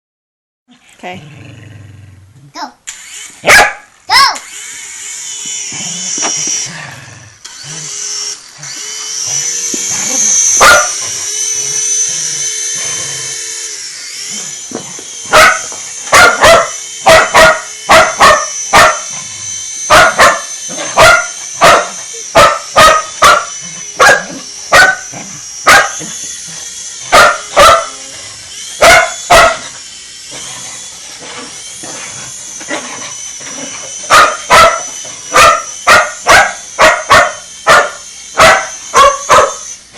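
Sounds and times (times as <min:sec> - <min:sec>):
helicopter motor whine: 0:02.9 - 0:39.9
dog barking: 0:03.4 - 0:03.9, 0:10.6 - 0:11.0, 0:15.3 - 0:19.1, 0:19.9 - 0:25.1, 0:25.7 - 0:26.1, 0:27.1 - 0:28.0, 0:28.8 - 0:29.7, 0:34.1 - 0:39.6.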